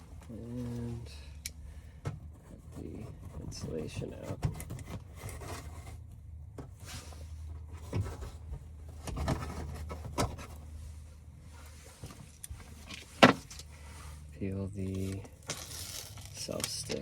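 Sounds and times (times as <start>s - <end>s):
steady low hum: 0.0s - 17.0s
scraping and rubbing insulation: 2.3s - 6.0s.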